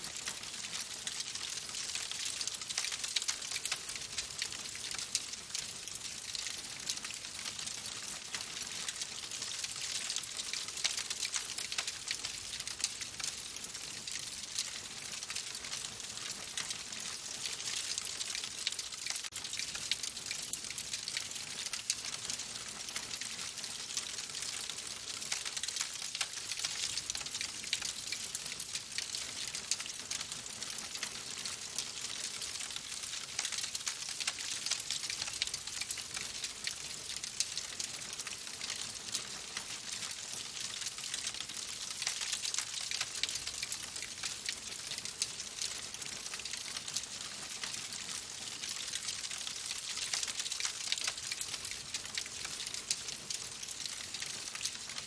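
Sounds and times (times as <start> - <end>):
wood fire crackling: 0.1 - 7.2, 7.8 - 16.8.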